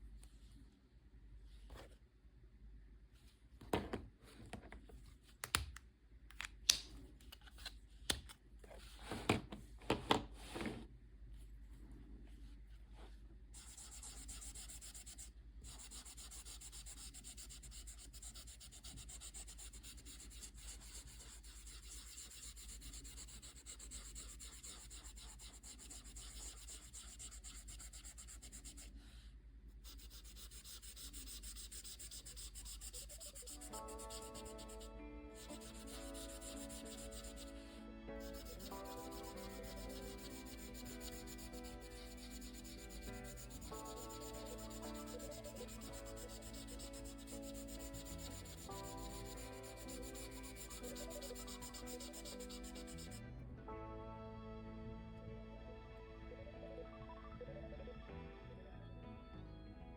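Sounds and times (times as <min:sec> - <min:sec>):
drawing tool scratching on paper: 0:13.6 - 0:29.0, 0:29.8 - 0:53.2.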